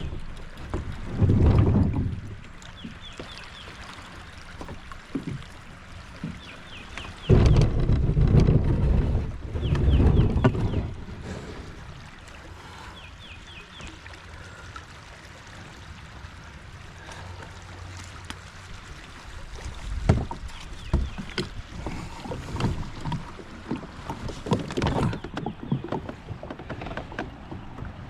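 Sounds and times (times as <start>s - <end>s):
wind noise: 0.0s - 2.4s, 7.2s - 11.4s
paddle knocking against kayak: 0.0s - 11.5s, 19.6s - 28.0s
flowing water: 0.0s - 28.0s
paddle strokes splashing: 0.0s - 28.0s.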